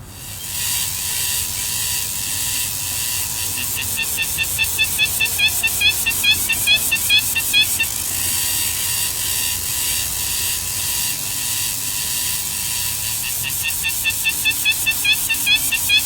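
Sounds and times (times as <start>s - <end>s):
nestlings chirping: 0.3s - 8.3s, 13.2s - 16.0s.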